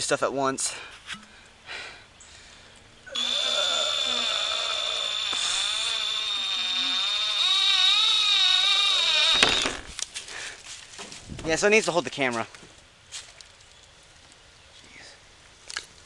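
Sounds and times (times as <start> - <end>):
power drill driving a screw: 3.2 - 9.9.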